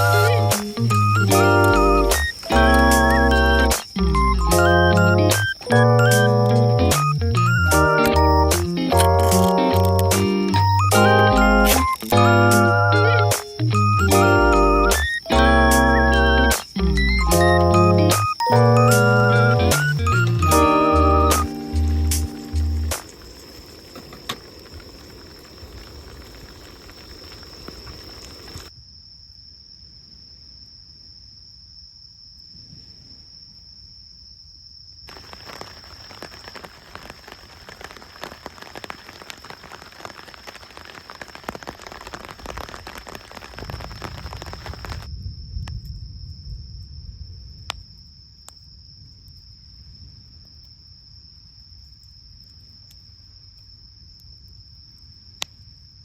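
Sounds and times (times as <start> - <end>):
campfire crackling and popping: 0.0 - 28.7, 35.1 - 45.8
crickets trilling: 0.0 - 56.0.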